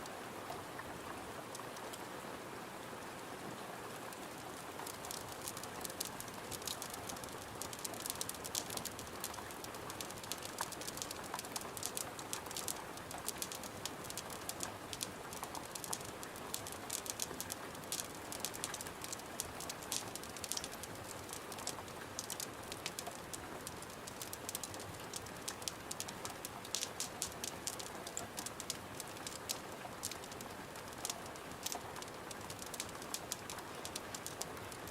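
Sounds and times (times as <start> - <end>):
rain hiss: 0.0 - 34.9
wood fire crackling: 4.3 - 34.9.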